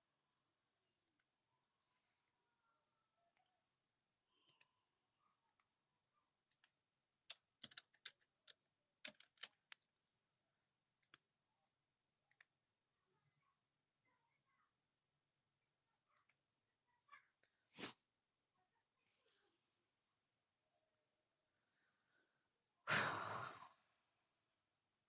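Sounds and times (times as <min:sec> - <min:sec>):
mouse and keyboard clicks: 0:06.4 - 0:09.9.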